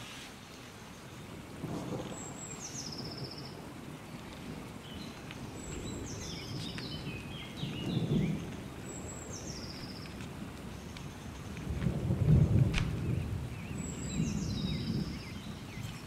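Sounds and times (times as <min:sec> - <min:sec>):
garden hose and wire rustling: 0:00.0 - 0:00.7
soft bird chirps: 0:04.8 - 0:11.6.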